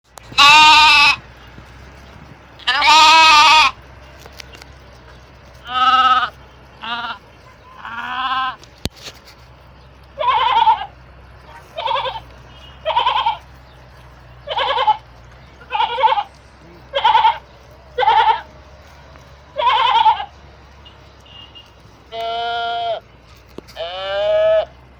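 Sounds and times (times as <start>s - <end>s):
sheep bleating: 0.4s - 1.2s, 2.6s - 3.8s, 5.6s - 8.7s, 10.1s - 13.6s, 14.4s - 18.6s, 19.5s - 23.1s, 23.8s - 24.8s.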